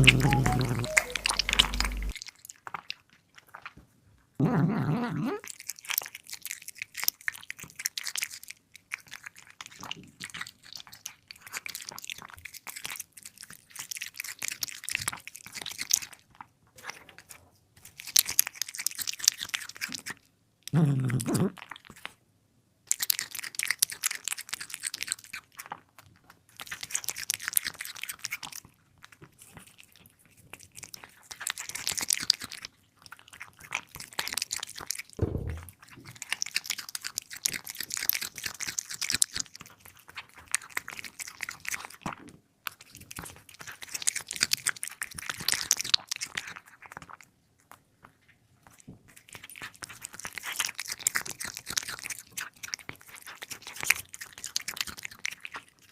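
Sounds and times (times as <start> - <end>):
cat chewing food: 0.0 - 4.3, 5.4 - 20.3, 22.9 - 55.9
low bump: 35.2 - 35.8.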